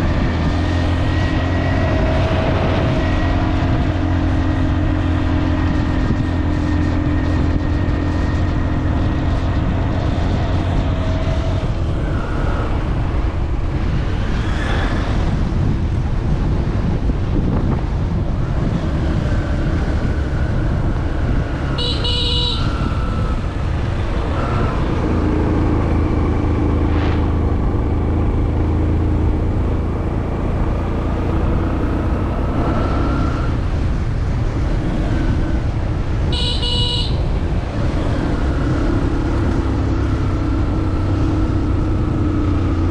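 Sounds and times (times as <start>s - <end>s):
road noise: 0.0s - 42.9s
vehicle engine running: 19.6s - 42.9s
car horn toot: 21.7s - 23.4s, 36.2s - 37.3s.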